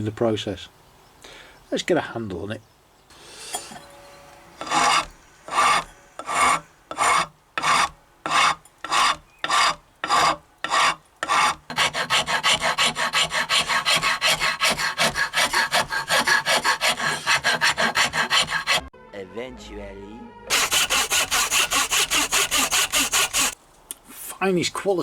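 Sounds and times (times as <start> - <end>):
hand rasp on wood: 4.6 - 18.9, 20.5 - 23.6.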